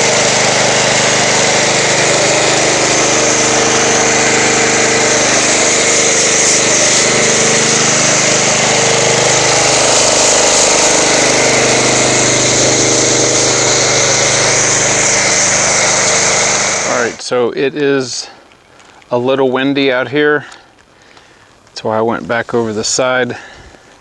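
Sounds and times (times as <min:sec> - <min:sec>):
pressure washer running: 0:00.0 - 0:17.2
spray hissing: 0:00.0 - 0:17.2.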